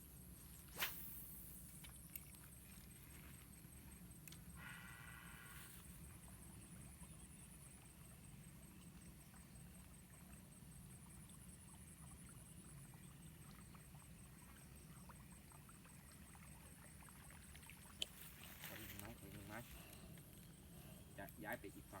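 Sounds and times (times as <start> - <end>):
faint ticks: 1.7 - 4.8, 17.6 - 20.6.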